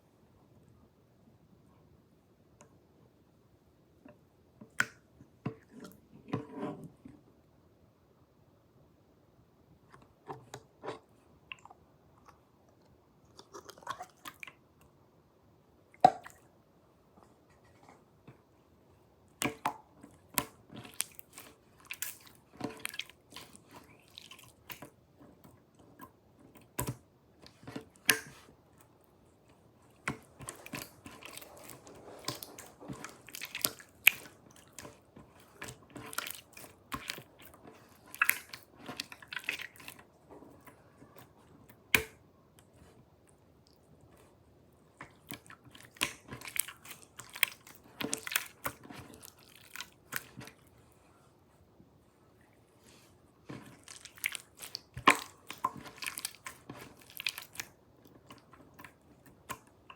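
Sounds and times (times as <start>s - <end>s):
slime squished by hand: 30.0s - 42.2s, 45.1s - 50.6s, 53.5s - 57.8s.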